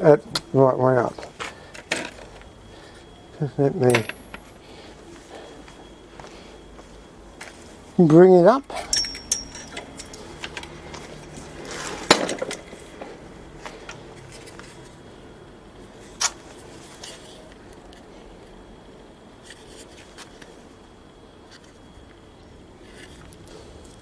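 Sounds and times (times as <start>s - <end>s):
metal tools clinking: 3.9s - 4.5s, 8.7s - 10.2s.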